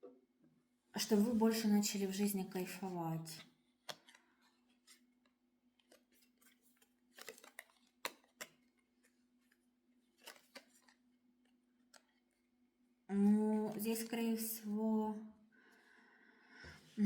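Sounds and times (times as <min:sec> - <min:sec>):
cards clicking and tapping: 0:03.8 - 0:04.2, 0:05.8 - 0:09.6, 0:10.2 - 0:11.0.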